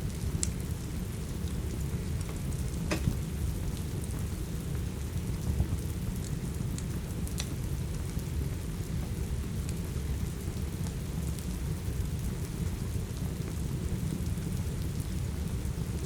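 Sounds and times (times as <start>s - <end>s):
steady rain: 0.0s - 16.0s
wood fire crackling and popping: 0.0s - 16.0s.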